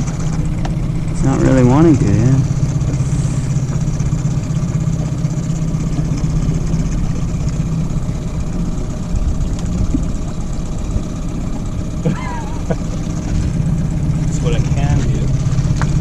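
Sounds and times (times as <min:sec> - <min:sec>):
boat motor droning: 0:00.0 - 0:16.0.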